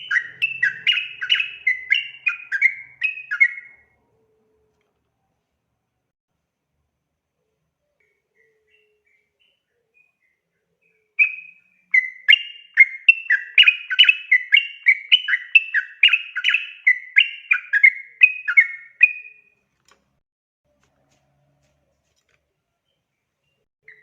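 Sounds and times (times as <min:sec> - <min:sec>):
bird singing bubbly notes: 0:00.0 - 0:04.0.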